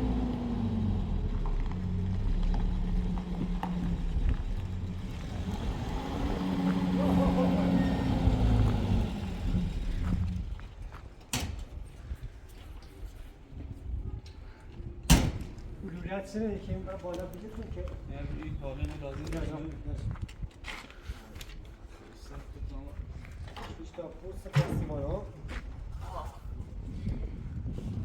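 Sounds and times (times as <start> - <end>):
vehicle engine running: 0.0 - 10.7.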